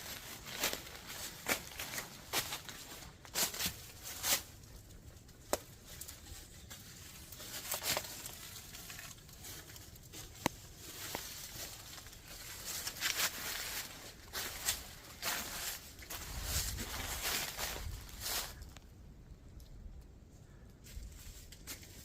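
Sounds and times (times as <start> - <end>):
footsteps on rocky ground: 9.8 - 18.7.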